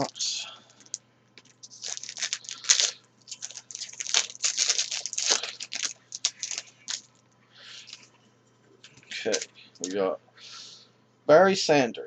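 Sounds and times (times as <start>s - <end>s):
wrapper tearing and crinkling: 0.8s - 7.2s, 9.1s - 9.5s.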